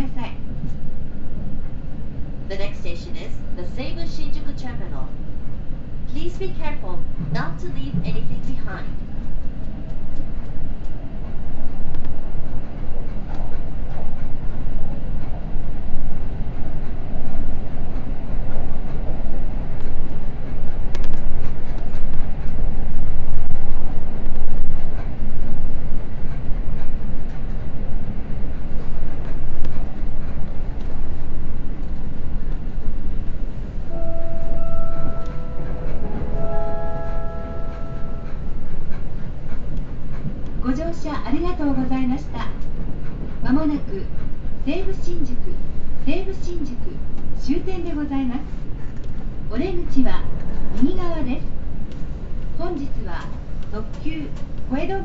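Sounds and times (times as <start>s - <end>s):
train wheels rumbling on rail: 0.0s - 55.0s
faint clicks: 8.9s - 15.9s.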